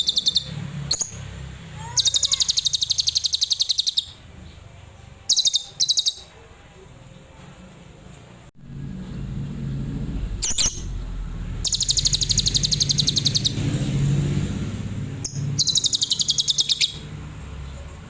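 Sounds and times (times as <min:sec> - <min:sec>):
bird chirping rapidly: 0:00.0 - 0:04.6, 0:05.3 - 0:06.3, 0:10.4 - 0:11.0, 0:11.6 - 0:14.4, 0:15.2 - 0:17.2.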